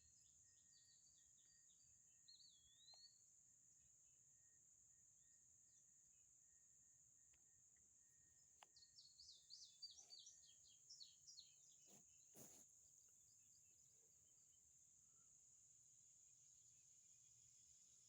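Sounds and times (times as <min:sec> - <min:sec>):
songbird chirping: 0:00.0 - 0:03.5, 0:06.5 - 0:15.4.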